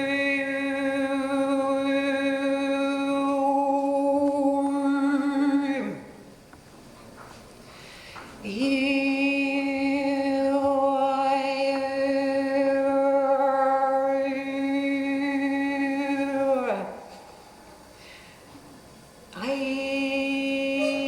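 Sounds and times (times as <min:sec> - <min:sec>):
woman singing sustained note: 0:19.4 - 0:21.0.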